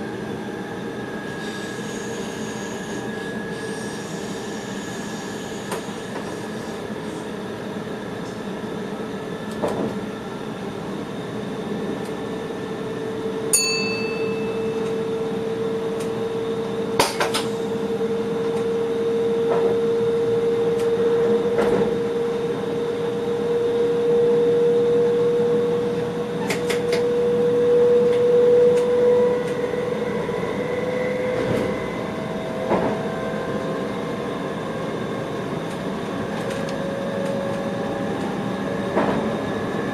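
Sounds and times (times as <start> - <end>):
train rumble: 0.0 - 39.9
short high beep: 13.6 - 15.0.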